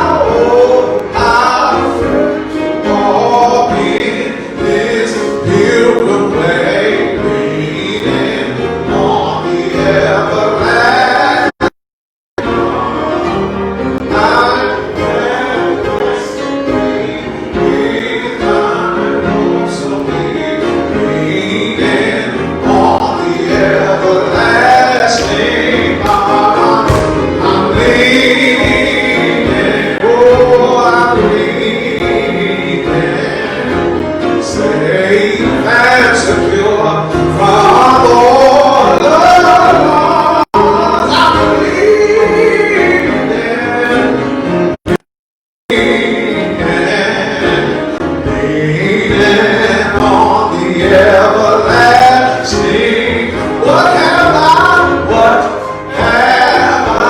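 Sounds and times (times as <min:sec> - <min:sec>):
gospel choir singing: 0:00.0 - 0:11.7, 0:12.4 - 0:44.8, 0:45.7 - 0:57.0
instrumental accompaniment with beat: 0:12.4 - 0:34.8.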